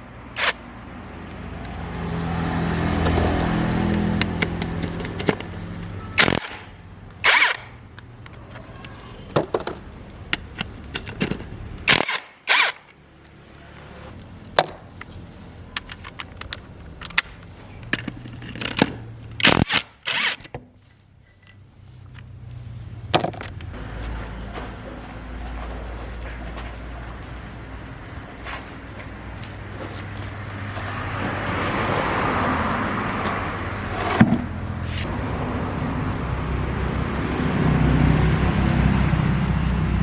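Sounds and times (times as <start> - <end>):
tools knocking and clanking: 3.0 - 5.9, 8.8 - 11.8.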